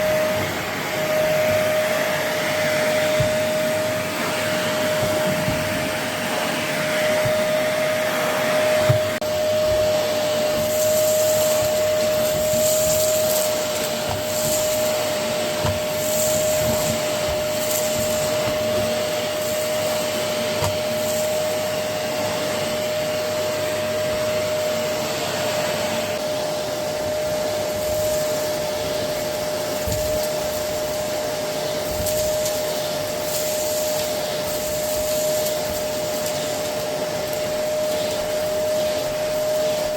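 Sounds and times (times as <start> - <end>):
vacuum cleaner motor whine: 0.0 - 39.9
debris rattling in vacuum: 8.7 - 21.7, 27.7 - 39.9.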